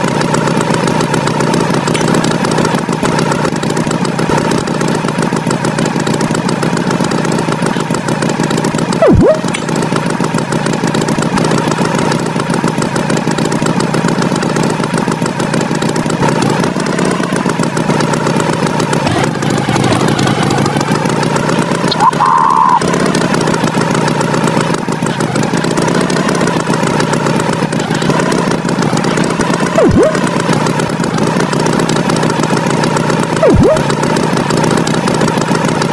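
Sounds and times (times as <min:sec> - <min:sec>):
tractor engine chugging: 0:00.0 - 0:35.9
short higher tone: 0:09.0 - 0:09.6, 0:33.4 - 0:33.9.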